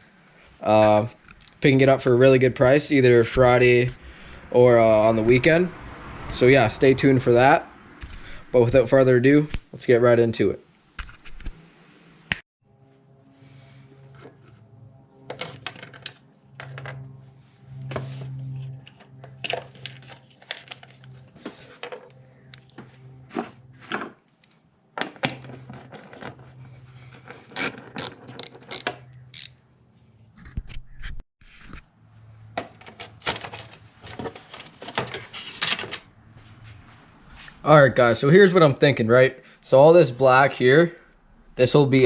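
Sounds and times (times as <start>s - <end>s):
steady low hum: 0.0s - 9.8s, 12.6s - 23.9s
tools clicking and clanking: 27.5s - 29.6s.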